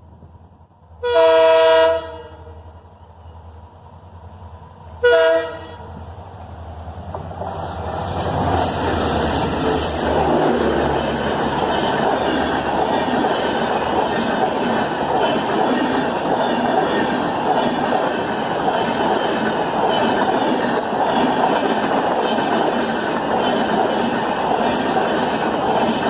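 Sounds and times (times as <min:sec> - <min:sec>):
train engine running: 0:00.0 - 0:26.0
locomotive air horn: 0:01.0 - 0:02.6, 0:05.0 - 0:06.0.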